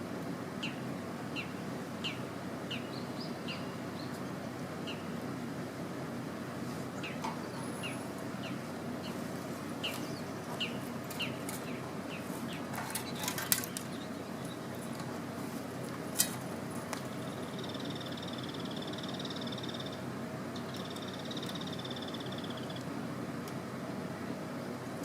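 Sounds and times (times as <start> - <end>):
bird chirping: 1.4 - 5.1, 9.8 - 14.9, 17.1 - 20.0, 20.6 - 22.8.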